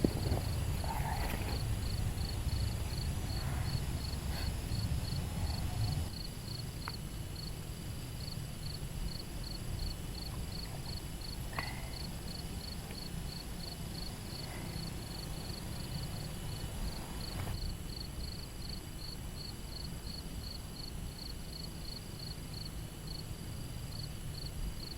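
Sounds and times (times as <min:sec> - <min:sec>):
cricket chirping: 0:00.0 - 0:24.9
low outdoor rumble: 0:00.0 - 0:24.9.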